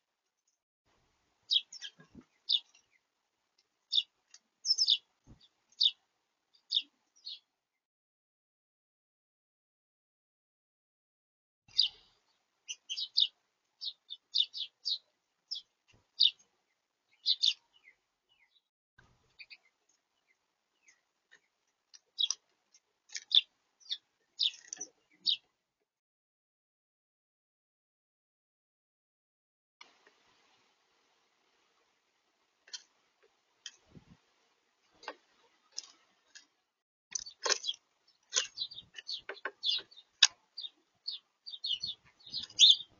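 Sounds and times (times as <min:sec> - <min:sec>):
small songbirds chirping: 0:01.4 - 0:07.9, 0:11.7 - 0:25.6, 0:32.6 - 0:42.9.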